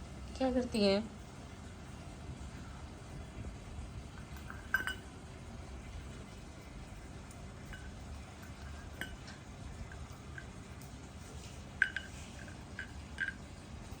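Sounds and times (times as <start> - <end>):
parrot pecking at a hard bowl: 4.1 - 5.2, 5.9 - 14.0.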